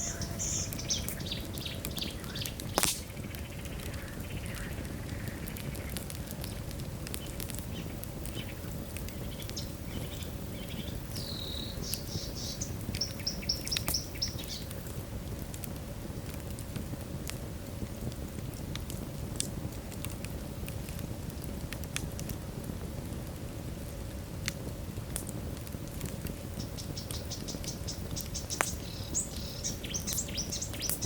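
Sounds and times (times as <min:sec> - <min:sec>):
bird chirping: 0:00.0 - 0:04.6, 0:07.7 - 0:14.7, 0:26.6 - 0:31.0
wood fire crackling: 0:00.0 - 0:31.0.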